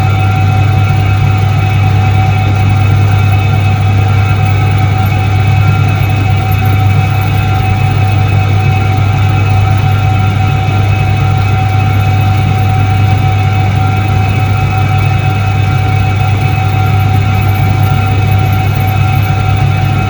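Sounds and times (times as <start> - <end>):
washing machine humming: 0.0 - 20.0
thin even whine: 4.7 - 8.6, 15.3 - 20.0.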